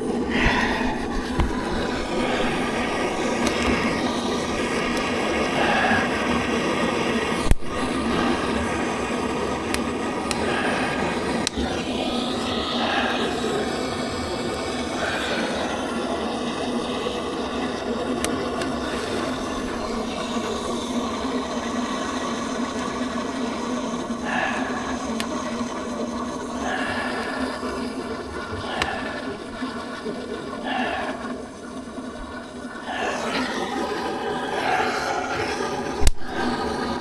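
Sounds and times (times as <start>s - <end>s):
running water rushing: 0.0s - 37.0s
faint sharp clicks: 7.4s - 11.8s, 36.0s - 36.6s.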